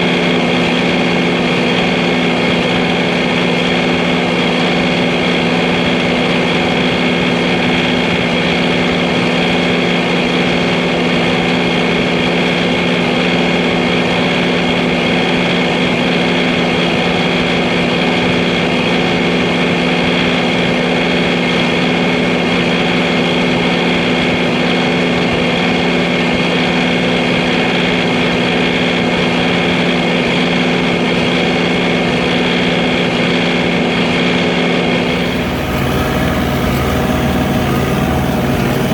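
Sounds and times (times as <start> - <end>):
diesel tractor engine running: 35.0 - 38.9.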